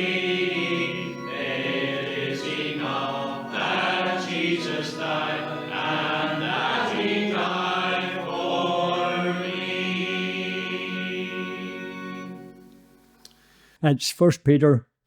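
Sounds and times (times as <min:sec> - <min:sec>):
congregation singing a hymn: 0:00.0 - 0:12.7.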